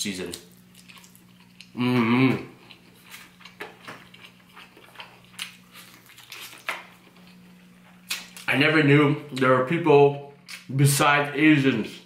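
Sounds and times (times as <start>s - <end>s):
faint steady hum: 0.0s - 12.0s
chewing and biting meat: 0.5s - 1.8s, 2.6s - 8.5s
voiced mouth sound: 1.7s - 2.6s.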